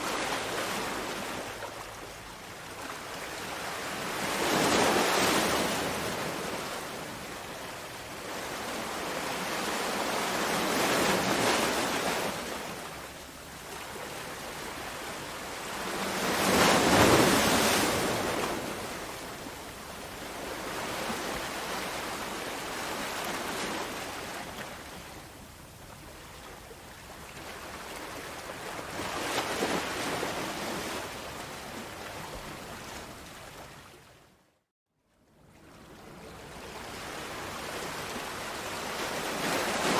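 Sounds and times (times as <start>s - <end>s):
sea waves washing onto shore: 0.0s - 13.1s.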